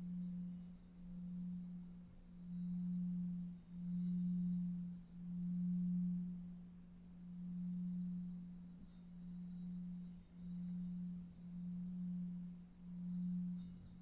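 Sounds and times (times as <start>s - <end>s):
low pulsing meditation drone: 0.0s - 14.0s.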